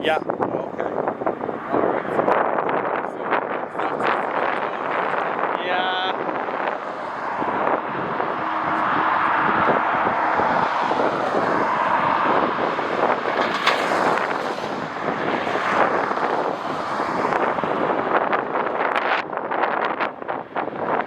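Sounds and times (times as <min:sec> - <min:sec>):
wind buffeting microphone: 0:00.0 - 0:21.0
jet airliner engines passing: 0:06.1 - 0:18.7.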